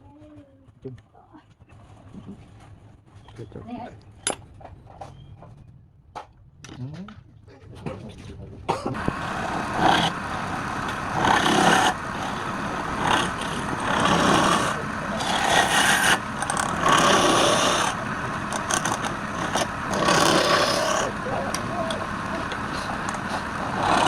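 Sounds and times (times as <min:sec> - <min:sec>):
tool scraping spinning wood: 0:09.0 - 0:24.0
wood lathe running: 0:09.0 - 0:24.0.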